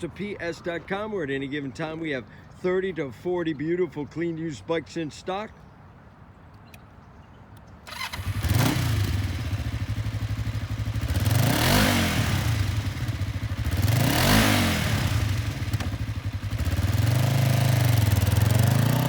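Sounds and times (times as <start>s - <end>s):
motorcycle engine idling and revving: 7.9s - 19.0s.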